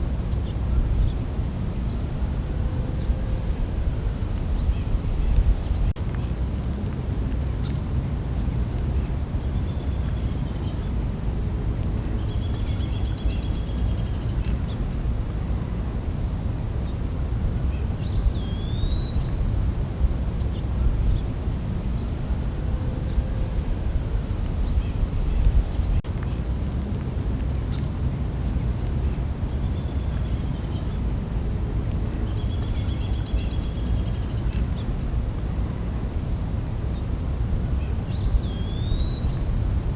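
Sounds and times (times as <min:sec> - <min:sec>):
cricket-like chirping: 0:00.0 - 0:39.9
insects droning: 0:00.0 - 0:39.9.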